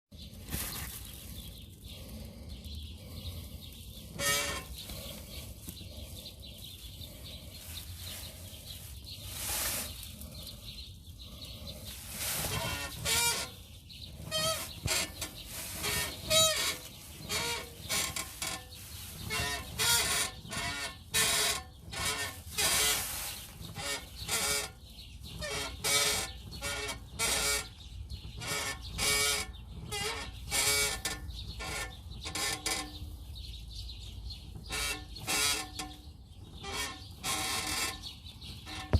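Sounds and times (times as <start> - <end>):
car suspension squeaking: 4.0 - 5.2, 12.0 - 33.6.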